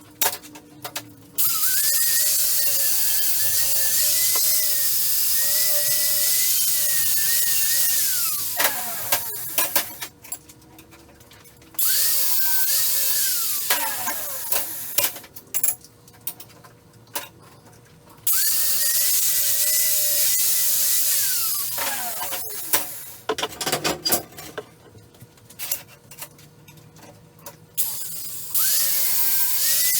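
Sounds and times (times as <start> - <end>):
power tool cutting steel: 1.4 - 10.0, 11.8 - 15.2, 18.3 - 23.3, 27.8 - 29.9
metal clicks and clanks: 21.8 - 27.6.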